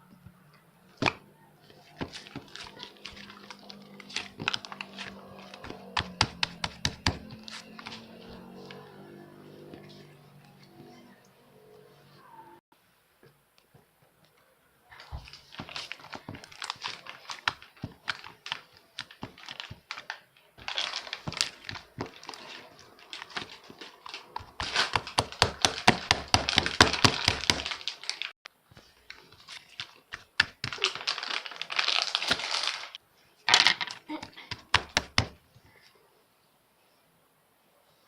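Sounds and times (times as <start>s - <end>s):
plastic bag crinkling: 2.1s - 6.0s, 15.3s - 28.4s, 29.0s - 33.0s.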